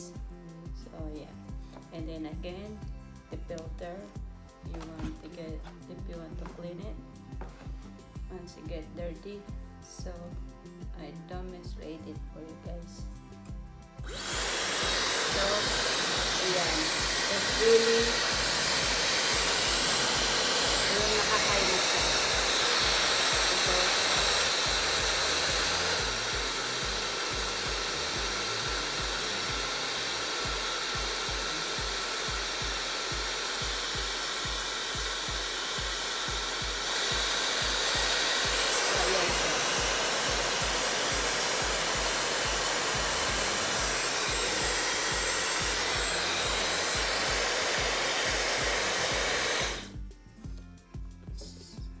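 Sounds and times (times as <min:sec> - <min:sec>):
hair dryer blowing: 0:04.7 - 0:05.8, 0:14.0 - 0:50.0.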